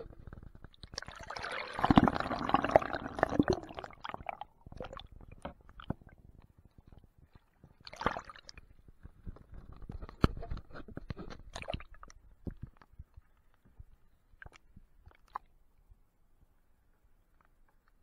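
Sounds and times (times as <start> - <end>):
water sloshing and gurgling: 0.0 - 12.9.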